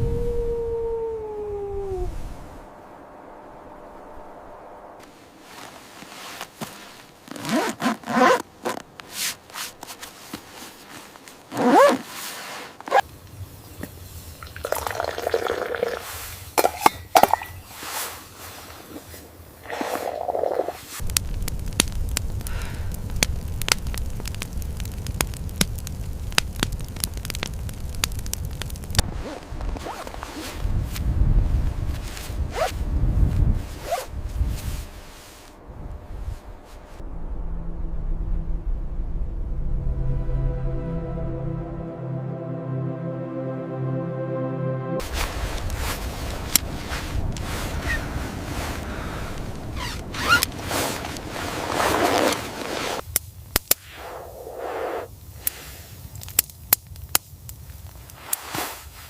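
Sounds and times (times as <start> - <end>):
low steady rumble: 0.0 - 7.1, 21.0 - 43.3.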